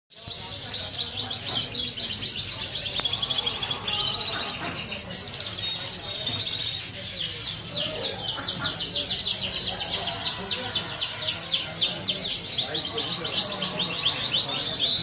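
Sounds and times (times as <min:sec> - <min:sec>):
canary singing trills: 0:00.1 - 0:15.0.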